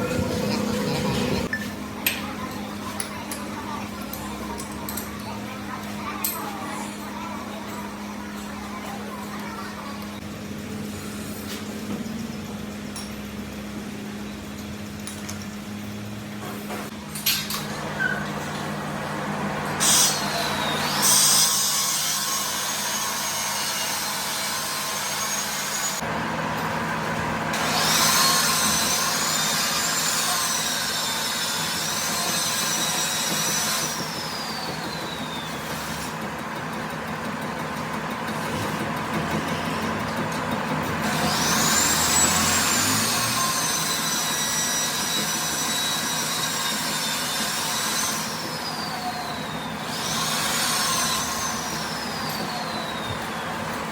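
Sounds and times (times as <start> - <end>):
harsh metal cutting whine: 0.0 - 1.5, 17.7 - 36.8, 38.3 - 53.9.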